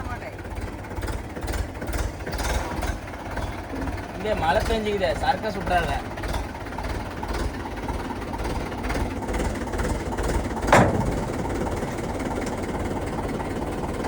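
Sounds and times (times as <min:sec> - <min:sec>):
diesel engine running: 0:00.0 - 0:14.0
sharp bang: 0:10.6 - 0:12.8.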